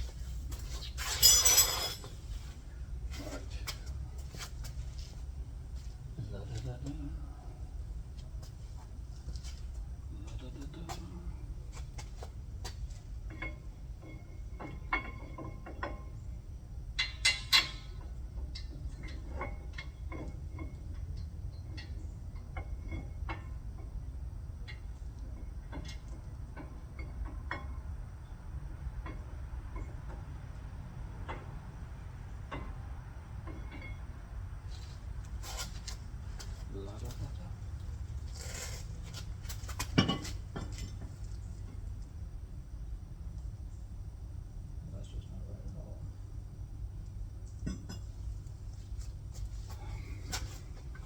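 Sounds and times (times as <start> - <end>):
steady low hum: 0.0 - 51.0
metallic tool clinks: 1.0 - 2.1.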